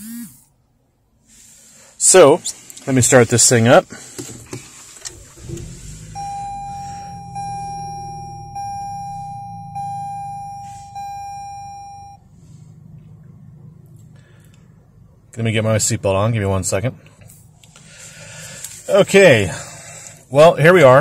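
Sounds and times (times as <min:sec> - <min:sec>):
car engine starting and idling: 0:00.0 - 0:21.0
dashboard warning chime: 0:05.4 - 0:12.2.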